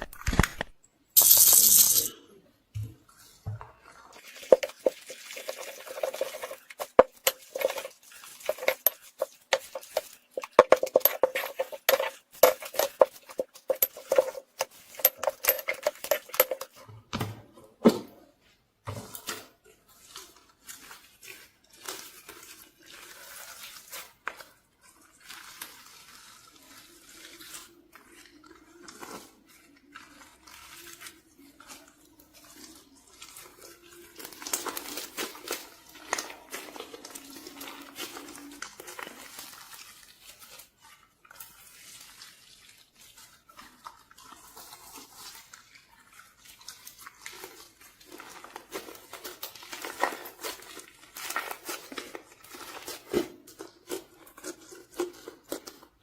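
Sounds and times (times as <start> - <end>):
small hard objects clattering: 0.0 - 2.1, 4.2 - 16.8
soft handling sounds: 2.8 - 16.8.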